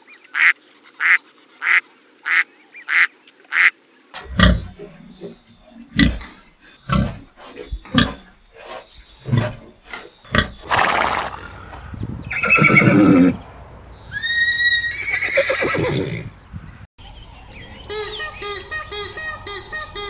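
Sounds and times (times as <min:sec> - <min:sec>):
farm animal grunts: 0:04.2 - 0:14.2
farm animal calls: 0:04.2 - 0:16.8.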